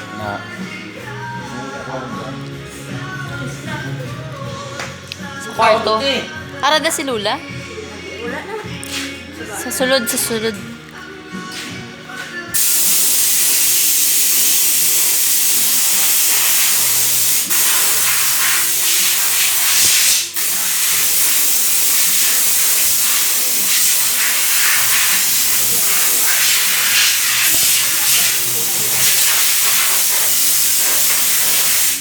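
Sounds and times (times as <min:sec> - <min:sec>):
high-pressure water spray hissing: 0:12.6 - 0:32.0.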